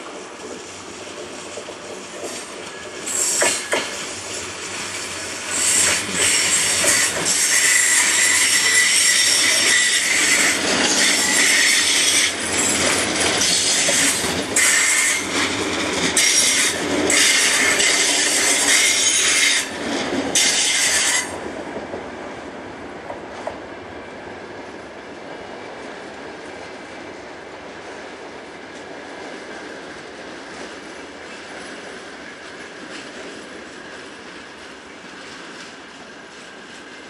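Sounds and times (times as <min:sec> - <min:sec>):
train wheels squealing on rails: 0:00.0 - 0:21.5.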